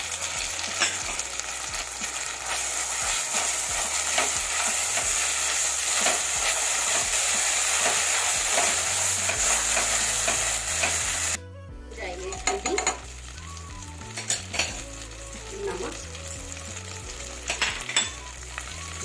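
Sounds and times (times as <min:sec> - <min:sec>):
onions sizzling in hot oil: 0:00.0 - 0:19.0
spatula stirring and scraping pot: 0:00.6 - 0:11.4.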